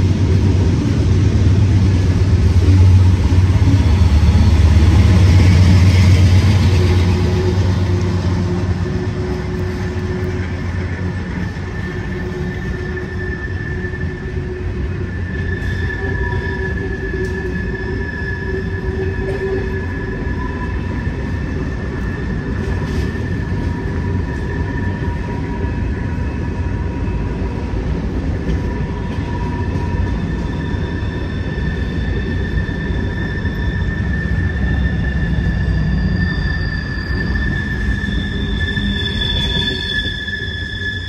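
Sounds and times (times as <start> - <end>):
train wheels rumbling on rail: 0.0 - 41.0
high-pitched wheel squeal: 2.6 - 27.6, 28.5 - 41.0.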